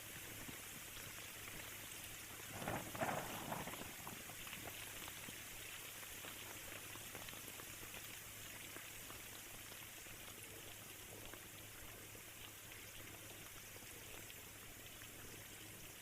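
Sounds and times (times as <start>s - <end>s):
rain falling: 0.2s - 9.2s
raindrops ticking: 2.4s - 5.3s.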